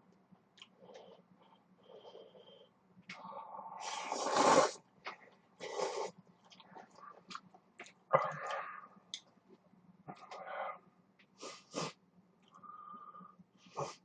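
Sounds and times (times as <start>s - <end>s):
person slurping noodles: 3.8s - 4.8s, 5.6s - 6.1s.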